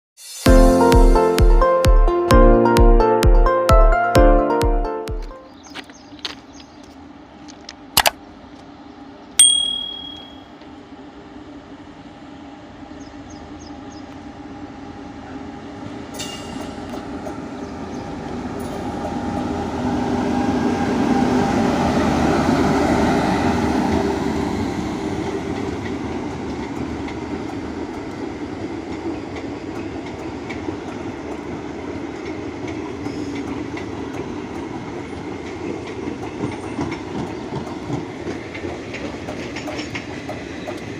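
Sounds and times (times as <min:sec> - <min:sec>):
sharp clicks: 0:08.0 - 0:08.2
train rumbling past: 0:10.6 - 0:40.9
wheels clattering over rails: 0:28.9 - 0:40.9.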